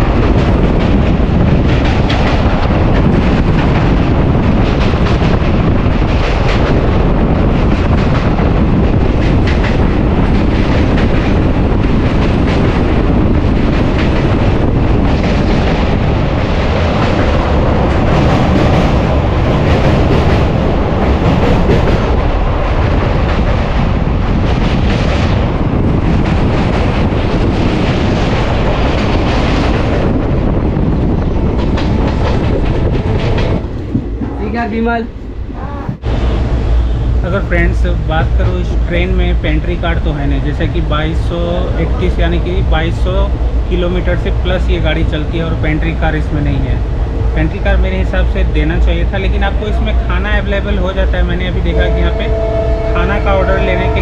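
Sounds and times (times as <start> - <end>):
wheels clattering on rails: 0.0 - 34.6
train rumbling over bridge: 0.0 - 54.0.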